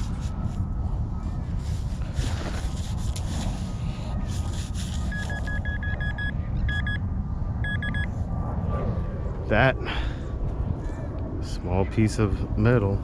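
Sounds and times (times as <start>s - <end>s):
wind rumble on microphone: 0.0s - 13.0s
metal detector beeping: 5.1s - 7.0s, 7.6s - 8.1s.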